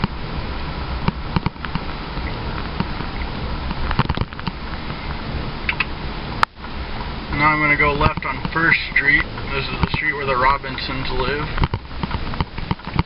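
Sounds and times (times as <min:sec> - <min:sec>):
truck engine and road rumble: 0:00.0 - 0:13.0
sharp clicks and rattles: 0:01.0 - 0:04.9, 0:05.6 - 0:06.5, 0:11.1 - 0:13.0.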